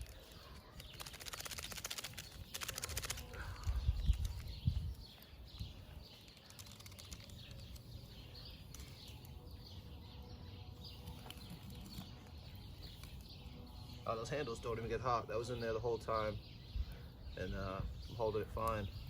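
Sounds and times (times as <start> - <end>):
small birds chirping: 0.0 - 19.0
wind on microphone: 2.9 - 6.1.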